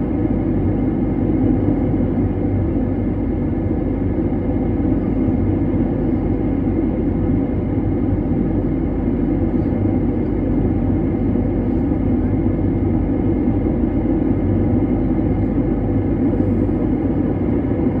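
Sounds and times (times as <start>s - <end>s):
airplane engines rumbling: 0.0s - 18.0s.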